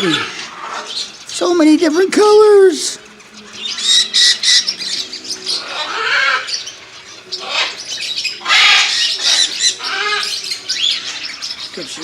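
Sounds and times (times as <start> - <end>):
birds chirping and squawking: 0.0 - 12.0
shrill bird calls: 3.4 - 11.8.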